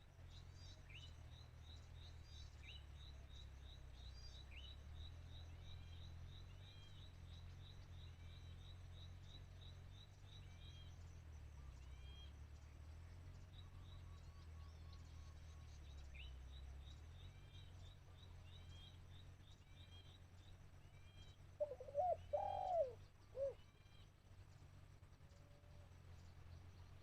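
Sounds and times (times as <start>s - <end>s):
small birds chirping: 11.8s - 27.0s
dove cooing: 21.6s - 23.6s.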